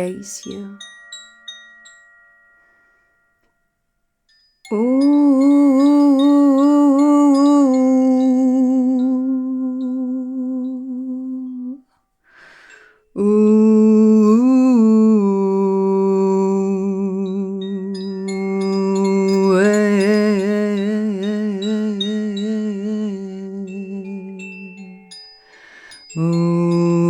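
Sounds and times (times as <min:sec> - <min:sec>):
woman humming long tones: 0:04.7 - 0:11.9, 0:13.1 - 0:25.2, 0:25.8 - 0:27.0
woman breathing: 0:11.9 - 0:13.2, 0:25.4 - 0:26.2.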